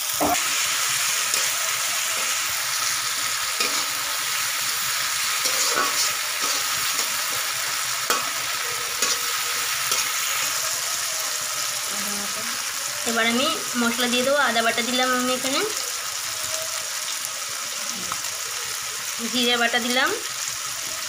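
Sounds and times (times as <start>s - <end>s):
tomato and onion sizzling in oil: 0.0s - 21.0s
metal spatula scraping pan: 0.1s - 10.6s.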